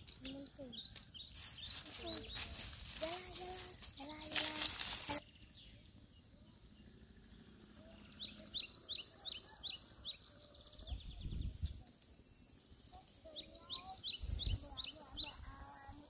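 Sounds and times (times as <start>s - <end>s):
bird high chirps: 7.9s - 16.0s.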